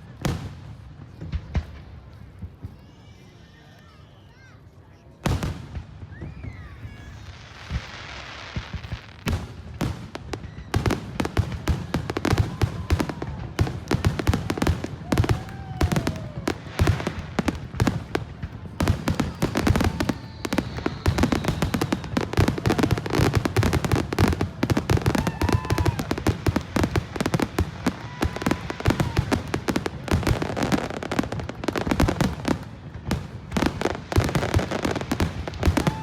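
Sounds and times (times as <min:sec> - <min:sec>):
fireworks crackling: 0:00.0 - 0:04.4, 0:05.0 - 0:36.0
firework whistles: 0:18.9 - 0:26.3.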